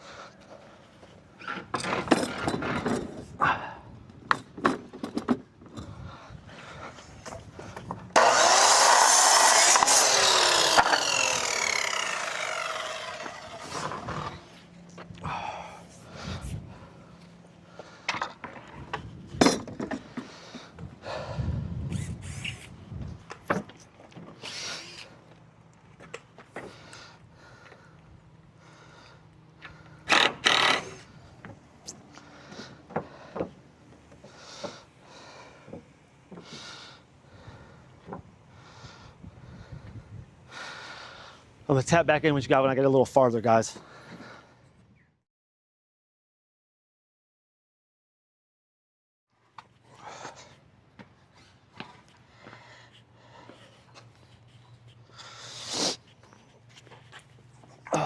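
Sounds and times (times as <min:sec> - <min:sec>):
power saw cutting board: 0:08.1 - 0:14.6, 0:30.1 - 0:31.1.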